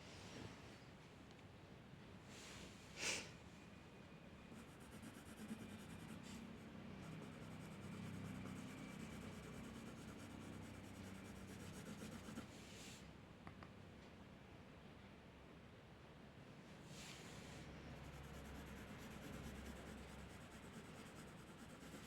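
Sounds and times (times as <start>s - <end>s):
drawing tool scratching on paper: 4.5s - 12.5s, 18.0s - 22.0s.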